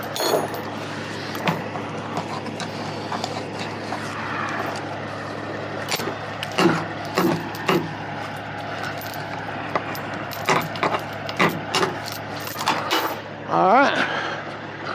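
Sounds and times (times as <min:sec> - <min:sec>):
metallic clanks and rattles: 0:00.0 - 0:03.8, 0:05.8 - 0:13.3
diesel engine idling: 0:00.0 - 0:14.9.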